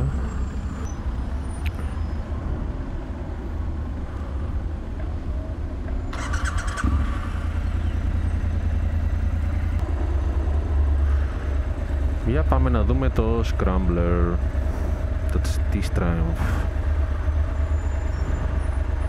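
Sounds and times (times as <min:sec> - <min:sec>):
road traffic: 0:00.0 - 0:19.0
motorcycle engine rumbling: 0:04.0 - 0:19.0.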